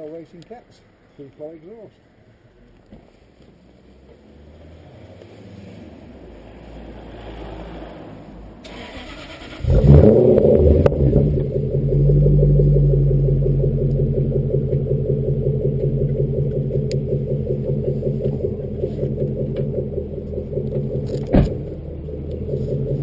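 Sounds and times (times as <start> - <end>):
car engine cranking and starting: 8.6 - 23.0
car engine idling: 8.7 - 23.0.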